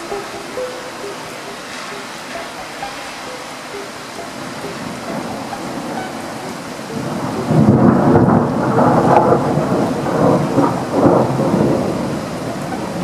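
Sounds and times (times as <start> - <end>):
steady rain falling: 0.0 - 13.0
rolling thunder rumble: 4.3 - 13.0.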